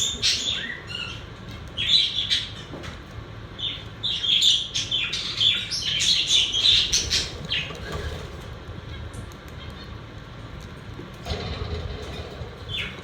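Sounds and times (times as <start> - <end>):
budgerigars chirping: 0.0 - 2.6, 3.6 - 8.3
low steady hum: 0.0 - 13.0.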